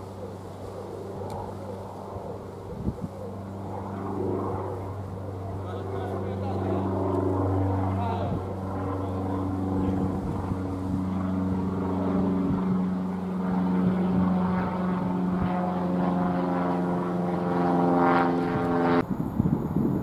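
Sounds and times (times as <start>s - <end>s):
train droning hum: 0.0s - 15.4s.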